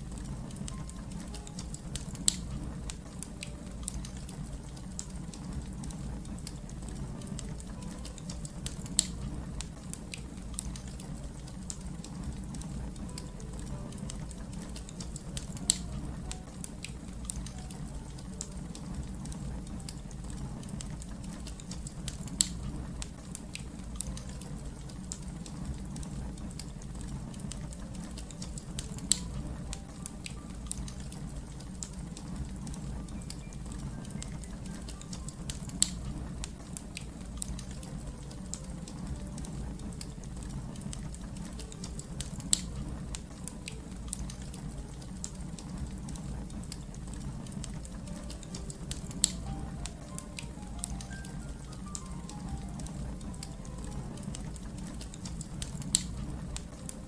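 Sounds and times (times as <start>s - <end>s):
wood fire crackling: 0.0s - 57.0s
sharp fire pops: 14.0s - 20.0s, 20.7s - 25.2s, 34.1s - 38.0s, 52.8s - 56.8s.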